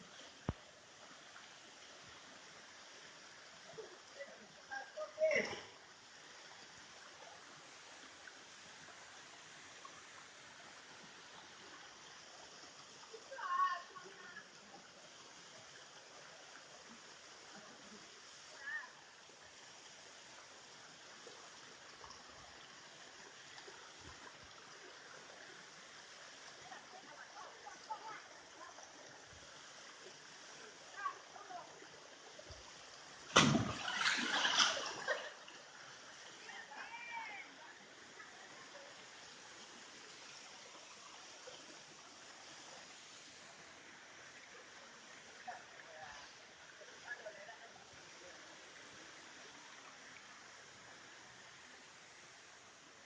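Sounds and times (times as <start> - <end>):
faint forest stream rushing: 0.0 - 53.0
water gurgles and splashes: 14.5 - 36.6.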